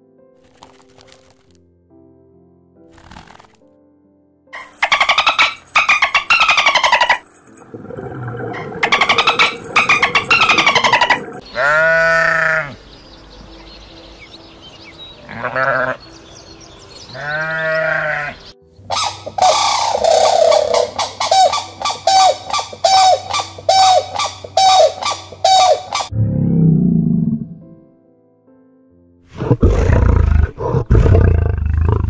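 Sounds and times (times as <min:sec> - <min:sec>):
buzzing pulsed calls: 0:04.8 - 0:12.6, 0:18.9 - 0:26.1
sheep bleating: 0:11.5 - 0:12.8, 0:15.2 - 0:16.0, 0:17.1 - 0:18.4.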